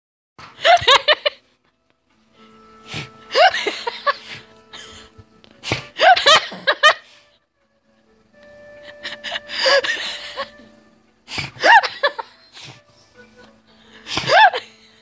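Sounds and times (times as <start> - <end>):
high-pitched whooping laughter: 6.0 - 7.0, 11.6 - 12.4, 14.1 - 14.7.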